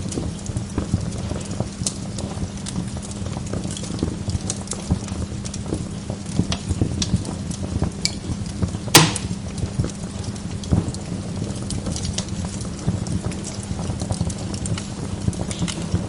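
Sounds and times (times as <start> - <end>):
wood fire crackling: 0.0 - 16.0
loud sharp pop: 8.9 - 9.4.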